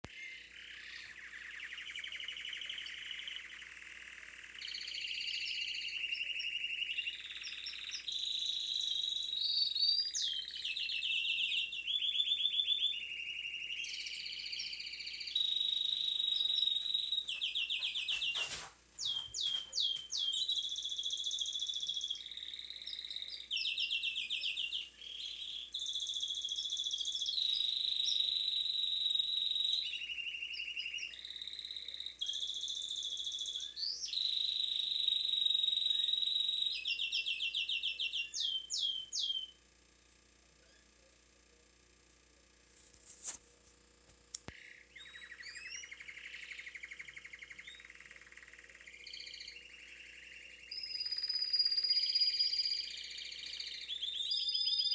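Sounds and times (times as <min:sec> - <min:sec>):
canary singing trills: 0:00.0 - 0:39.6, 0:44.4 - 0:54.9
clicks and falling chirps: 0:15.8 - 0:20.6.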